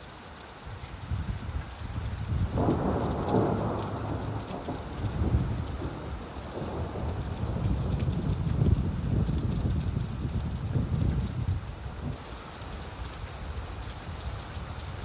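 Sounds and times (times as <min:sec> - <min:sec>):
steady rainfall: 0:00.0 - 0:15.0.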